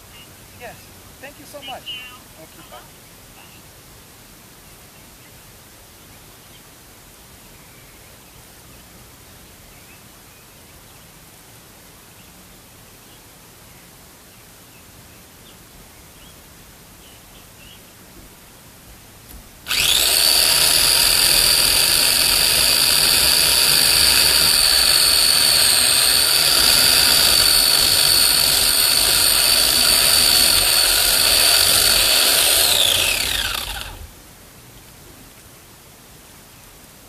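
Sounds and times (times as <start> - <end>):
electric chainsaw whining: 19.7 - 34.1.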